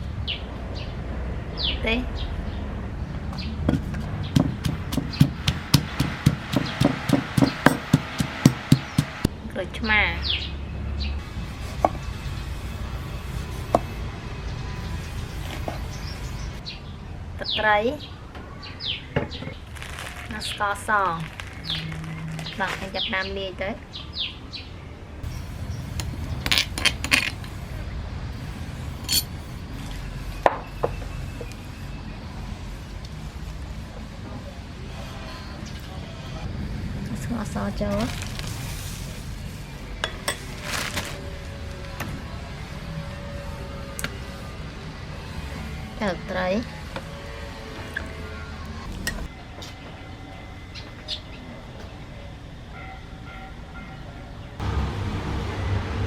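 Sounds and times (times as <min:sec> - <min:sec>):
knife chopping on wooden board: 0:03.7 - 0:09.2
steady low rumble: 0:25.0 - 0:34.8
utensils clinking against bowls and pots: 0:28.9 - 0:29.9.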